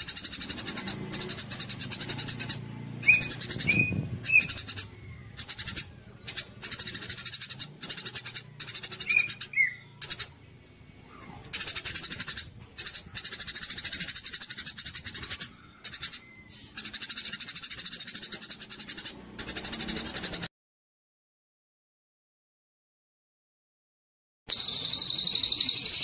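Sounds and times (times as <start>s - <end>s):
bird call notes: 0.0s - 10.4s, 11.1s - 20.5s
songbird rattling trills: 0.0s - 10.6s, 11.5s - 20.5s, 24.5s - 26.0s.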